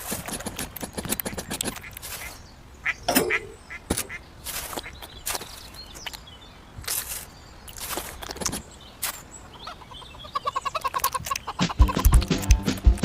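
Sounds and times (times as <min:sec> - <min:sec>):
chicken clucking: 0:09.7 - 0:12.6
music with a beat: 0:11.6 - 0:13.0.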